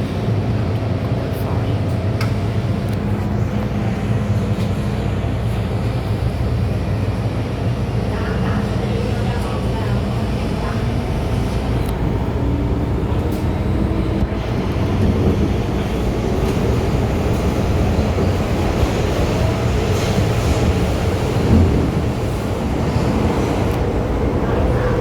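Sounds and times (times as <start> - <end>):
train wheels rumbling: 0.0 - 25.0.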